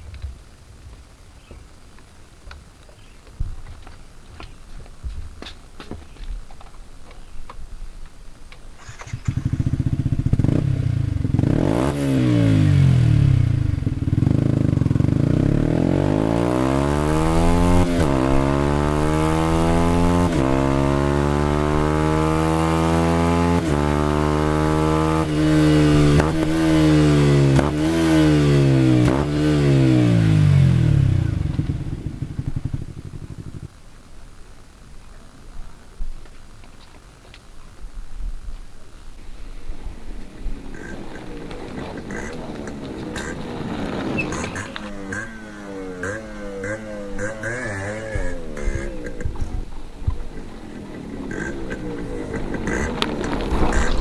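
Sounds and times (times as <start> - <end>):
motorcycle engine revving: 8.8 - 33.8, 39.2 - 54.0.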